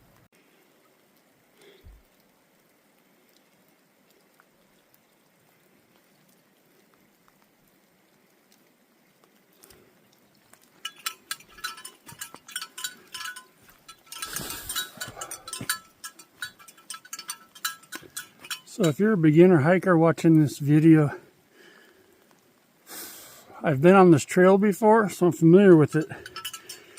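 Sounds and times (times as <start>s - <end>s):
light rain hiss: 0.0s - 26.9s
rustling: 9.6s - 18.9s
bells jingling: 10.8s - 19.6s, 25.0s - 26.9s.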